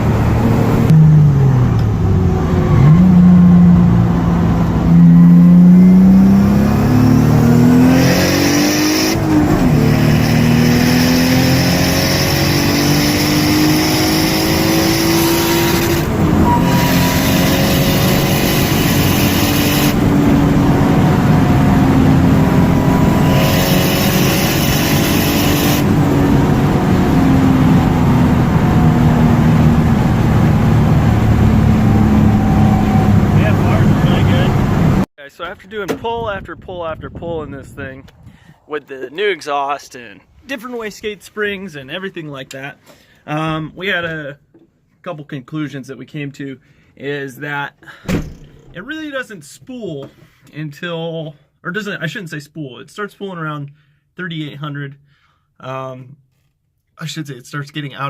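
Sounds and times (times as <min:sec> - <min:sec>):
car engine accelerating hard: 0:00.0 - 0:35.1.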